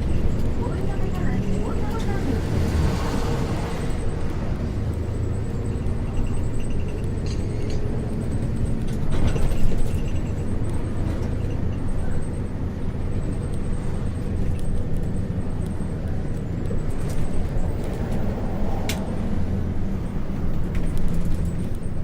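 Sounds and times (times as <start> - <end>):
bus diesel engine running: 0.0 - 22.0
clatter: 4.9 - 19.1.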